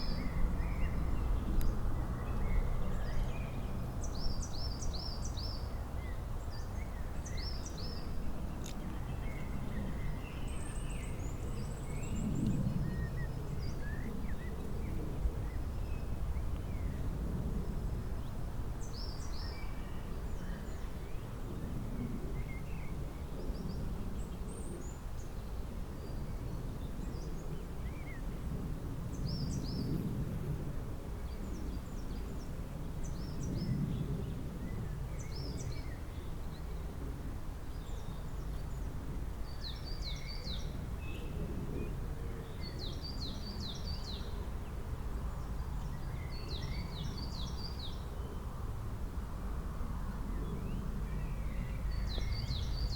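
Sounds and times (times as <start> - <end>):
songbirds chirping: 0.0 - 52.9.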